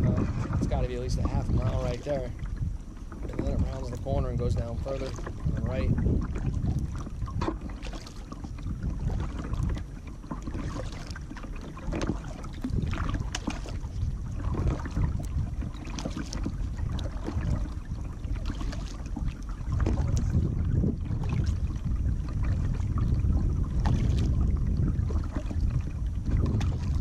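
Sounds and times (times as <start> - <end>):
kayak paddle splashing: 0.0 - 27.0
wind rumbling on microphone: 0.0 - 27.0.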